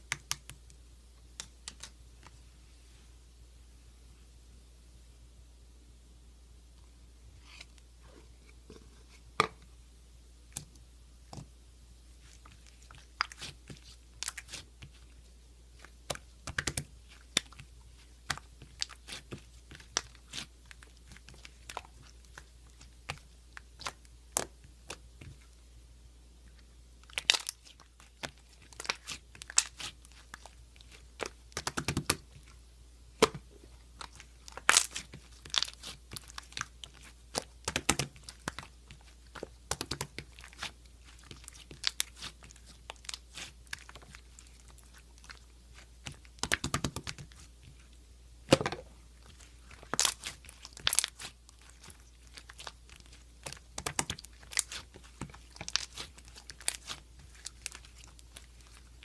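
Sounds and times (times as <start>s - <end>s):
crunching and crackling clicks: 34.0s - 47.5s, 49.2s - 59.0s.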